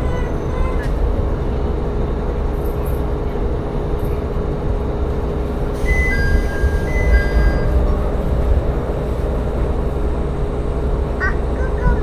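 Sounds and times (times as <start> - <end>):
railcar rumbling: 0.0 - 12.0
high ringing tones: 5.9 - 8.0.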